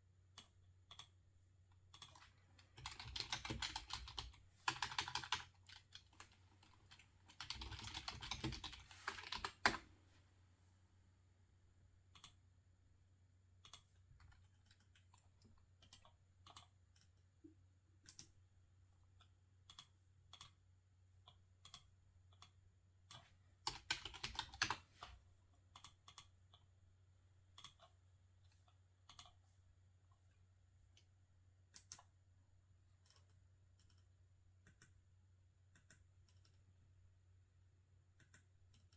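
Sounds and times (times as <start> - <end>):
faint keyboard typing: 0.1 - 10.2, 12.0 - 12.5, 13.5 - 26.8, 27.4 - 36.9, 38.1 - 38.9.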